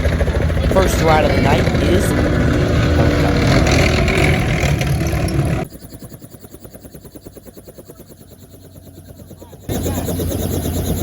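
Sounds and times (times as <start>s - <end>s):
loud rushing noise: 0.0s - 5.6s
helicopter rotor chop: 0.0s - 11.0s.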